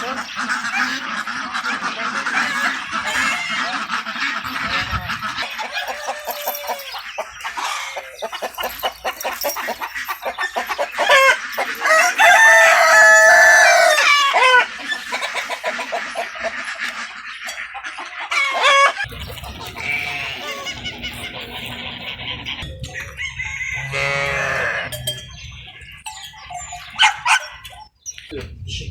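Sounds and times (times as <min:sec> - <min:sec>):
chickens clucking: 0:00.0 - 0:28.4
rooster crowing loudly: 0:05.5 - 0:07.0, 0:11.0 - 0:14.7, 0:23.0 - 0:24.9.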